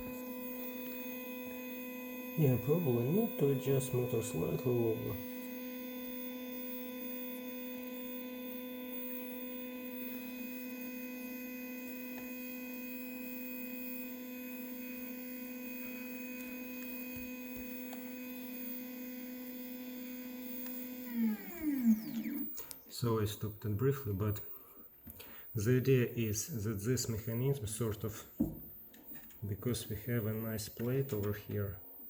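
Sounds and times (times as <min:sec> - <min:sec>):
stepper motor whining: 0:00.0 - 0:23.0.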